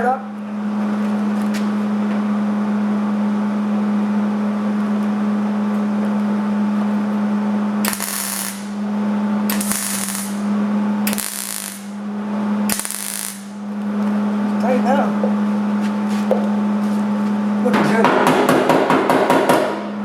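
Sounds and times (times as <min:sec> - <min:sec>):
steady electrical hum: 0:00.0 - 0:20.0
welding arc crackling: 0:07.8 - 0:08.8, 0:09.5 - 0:12.0, 0:12.7 - 0:13.6.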